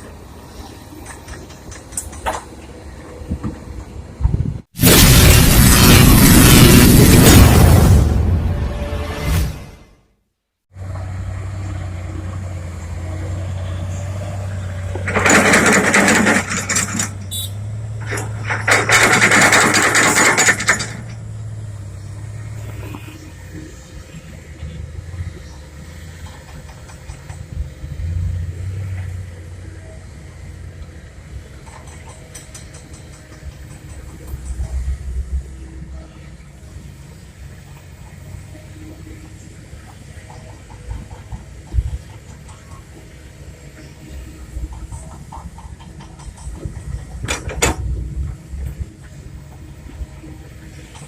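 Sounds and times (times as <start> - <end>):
loud bursts of rushing noise: 4.8 - 9.8
truck diesel engine humming: 10.8 - 15.5.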